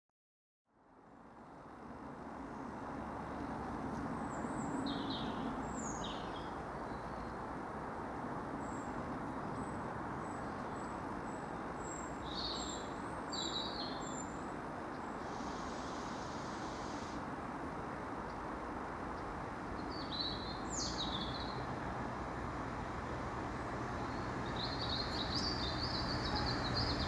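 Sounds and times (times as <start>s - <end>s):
small birds chirping: 4.4s - 7.4s, 9.6s - 17.2s, 19.2s - 21.6s, 24.0s - 27.0s
faint hiss: 15.0s - 17.4s
distant train rumbling: 21.0s - 27.0s.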